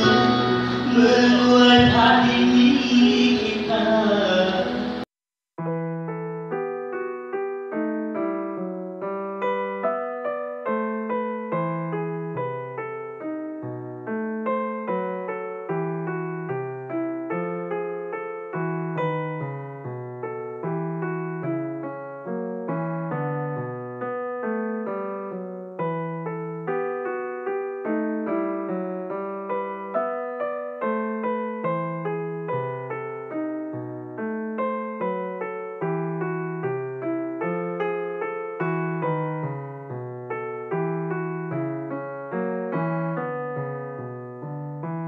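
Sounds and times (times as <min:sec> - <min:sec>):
live concert recording: 0:00.0 - 0:05.0
solo piano melody: 0:00.0 - 0:45.0.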